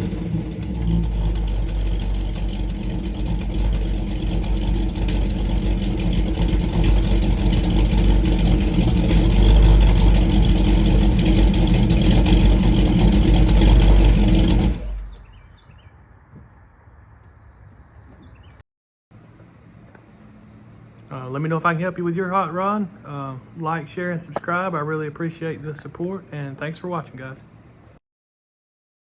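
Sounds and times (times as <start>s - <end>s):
car engine idling: 0.0s - 15.4s.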